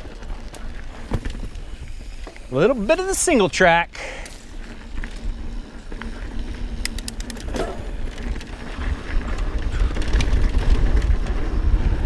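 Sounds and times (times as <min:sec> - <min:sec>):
bike tyres on dirt trail: 0:00.0 - 0:12.0
sharp clicks and rattles: 0:04.1 - 0:11.4
wind rumble: 0:04.4 - 0:12.0.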